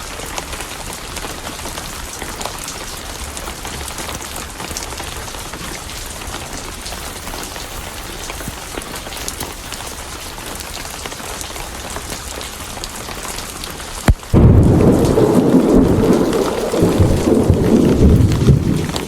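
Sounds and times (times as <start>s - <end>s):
heavy rain: 0.0s - 19.0s
rolling thunder: 14.1s - 19.0s
thunderclap: 14.1s - 19.0s.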